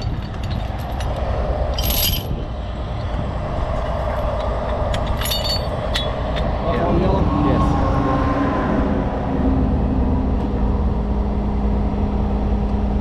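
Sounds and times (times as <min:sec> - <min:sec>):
metallic clinks: 0:00.0 - 0:02.4, 0:04.1 - 0:06.5
diesel truck engine running: 0:00.0 - 0:13.0.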